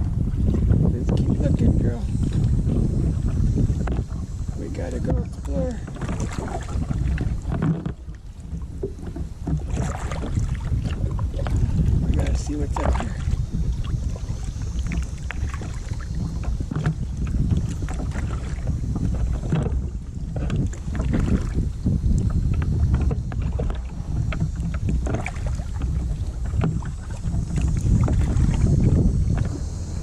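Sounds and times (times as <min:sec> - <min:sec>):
water splashing off paddle: 0:00.0 - 0:30.0
wind rumble on microphone: 0:00.0 - 0:30.0
small knocks and drips: 0:03.7 - 0:13.4, 0:14.4 - 0:28.7.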